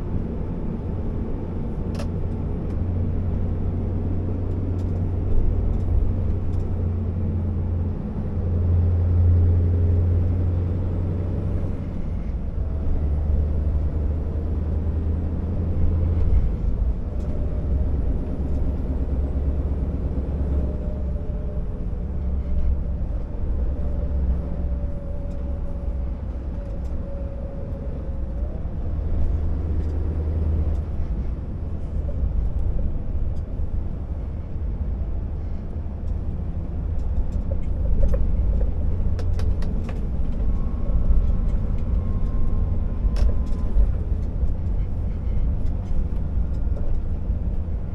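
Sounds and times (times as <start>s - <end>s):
diesel truck engine droning: 0.0s - 47.9s.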